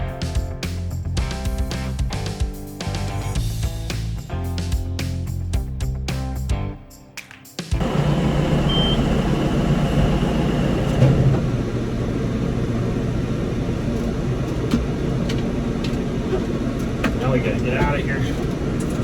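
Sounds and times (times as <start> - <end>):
tractor diesel engine running: 7.8 - 19.0.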